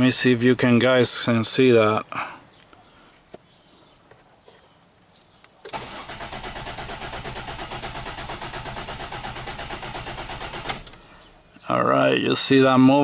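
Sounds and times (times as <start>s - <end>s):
car engine cranking: 5.7s - 11.4s.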